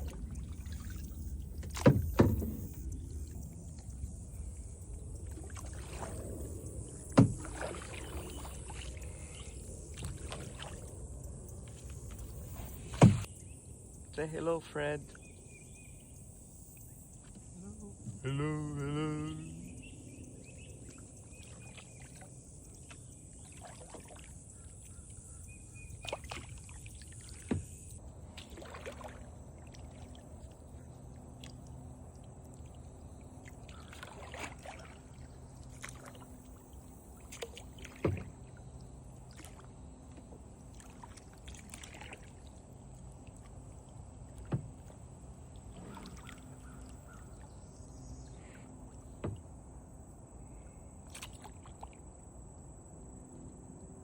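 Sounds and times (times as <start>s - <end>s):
paddle swishing in water: 0.0s - 4.6s, 5.2s - 11.0s, 11.6s - 13.3s, 20.8s - 49.6s, 51.0s - 52.0s
high-pitched hum: 16.3s - 20.1s.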